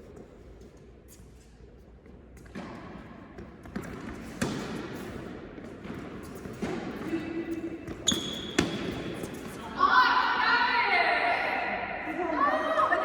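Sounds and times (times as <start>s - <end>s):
low hall hum: 0.0s - 13.0s.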